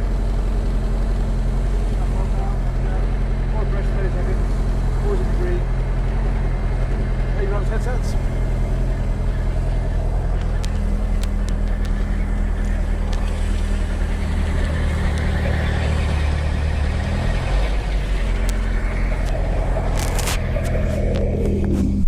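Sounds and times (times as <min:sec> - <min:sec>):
helicopter engine idling: 0:00.0 - 0:22.0
sharp clicks: 0:09.0 - 0:16.3, 0:17.0 - 0:22.0.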